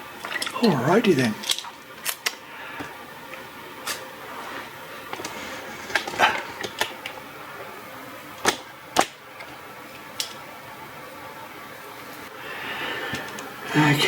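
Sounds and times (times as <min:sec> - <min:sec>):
parts and tools clicking and knocking: 0:00.2 - 0:00.6.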